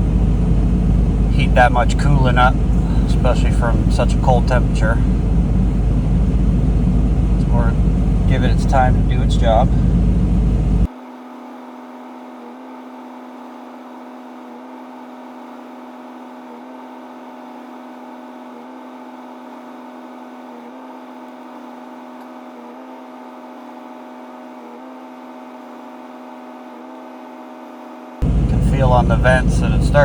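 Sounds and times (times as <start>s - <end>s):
diesel engine idling: 0.0s - 10.9s, 28.2s - 30.0s
heater blower running: 0.0s - 10.9s, 28.2s - 30.0s.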